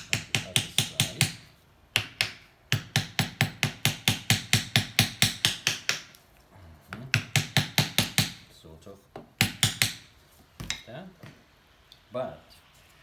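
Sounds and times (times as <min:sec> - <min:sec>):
rapid hammer taps: 0:00.0 - 0:06.2, 0:06.9 - 0:08.4, 0:09.2 - 0:11.4.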